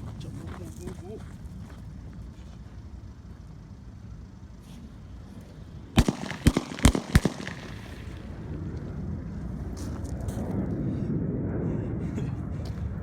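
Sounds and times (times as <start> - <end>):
firework shell sparking: 6.0 - 8.5
firework bangs: 6.0 - 8.6.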